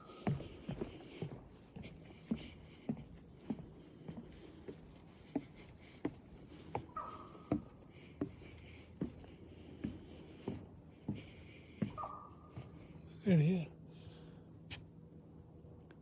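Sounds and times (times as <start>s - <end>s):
footsteps on wooden boardwalk: 0.0s - 12.9s
faint bird calling: 6.8s - 7.7s, 11.9s - 12.5s.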